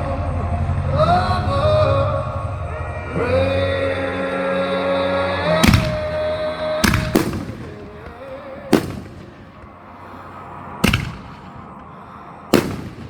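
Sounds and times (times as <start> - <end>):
fireworks bangs with echo: 5.5 - 13.0.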